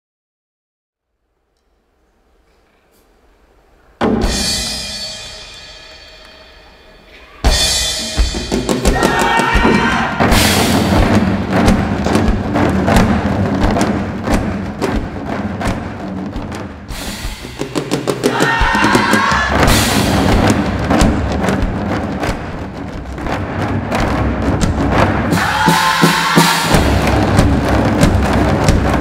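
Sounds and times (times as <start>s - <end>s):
loud cymbal crash: 4.0s - 8.7s
fast ensemble drumming: 4.0s - 29.0s.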